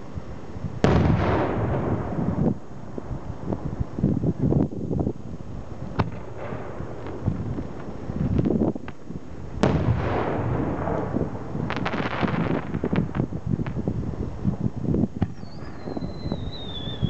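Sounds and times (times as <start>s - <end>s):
firework crackling: 0.0s - 17.0s
firework bang: 0.8s - 2.6s, 9.6s - 13.8s
sharp firework pops: 0.8s - 2.6s, 5.9s - 13.9s, 15.2s - 17.0s.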